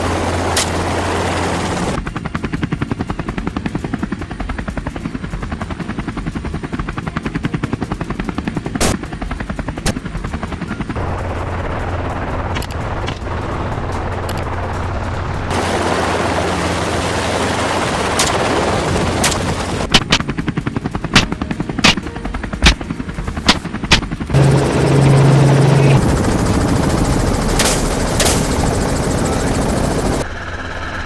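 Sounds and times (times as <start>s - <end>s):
helicopter rotor and turbine: 0.0s - 31.0s
rifle shots: 19.2s - 20.3s, 21.2s - 22.0s.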